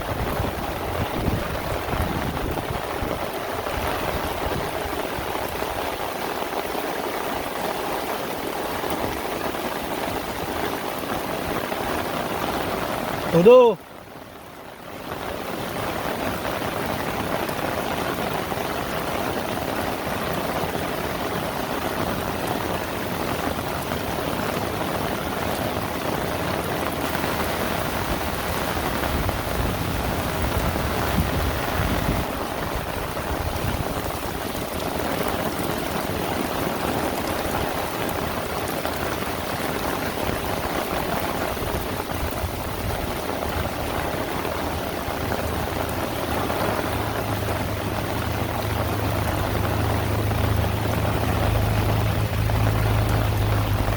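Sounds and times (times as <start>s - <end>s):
heavy rain falling: 0.0s - 53.9s
low rumble: 46.8s - 53.9s.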